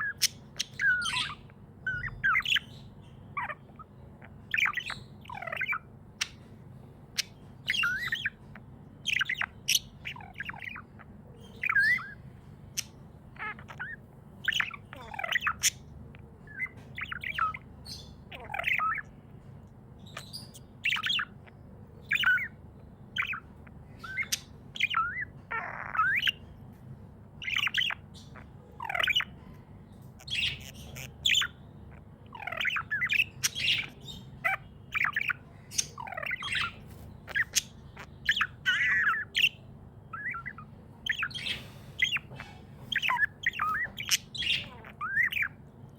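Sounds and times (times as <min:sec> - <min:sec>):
budgerigars chirping: 0:00.0 - 0:45.9
faint low hum: 0:00.0 - 0:45.9.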